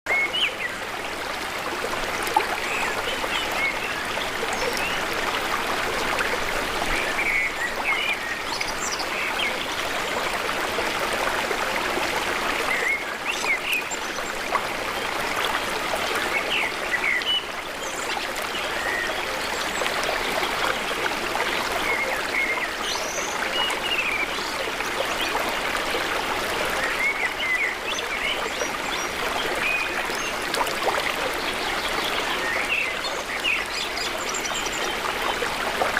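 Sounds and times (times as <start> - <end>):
flowing water rushing: 0.1 - 35.9.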